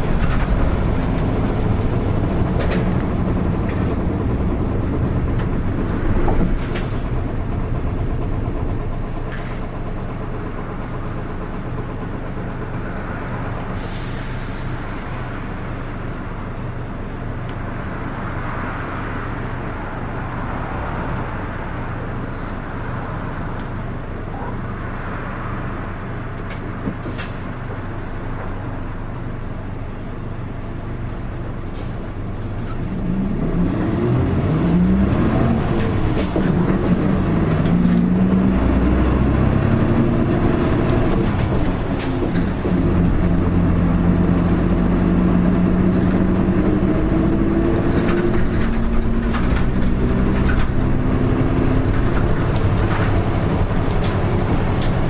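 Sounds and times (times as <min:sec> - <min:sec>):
bus diesel engine running: 0:00.0 - 0:55.0
air hiss: 0:13.8 - 0:15.9.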